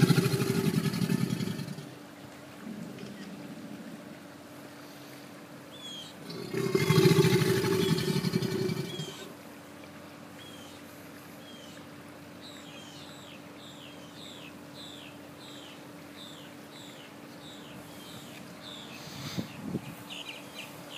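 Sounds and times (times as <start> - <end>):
faint steady hum: 0.0 - 20.9
bird chirping: 5.7 - 6.2, 12.4 - 20.9.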